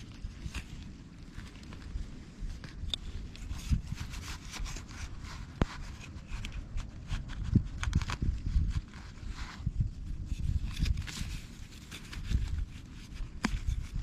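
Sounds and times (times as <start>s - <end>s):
rubbing and scraping: 2.5s - 14.0s.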